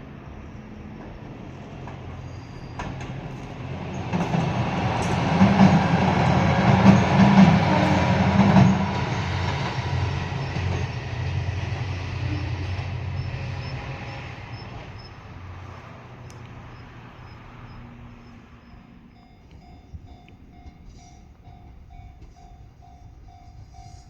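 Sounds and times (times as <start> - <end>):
diesel railcar engine: 0.0 - 24.0
wheels clattering over rail joints: 1.0 - 15.6.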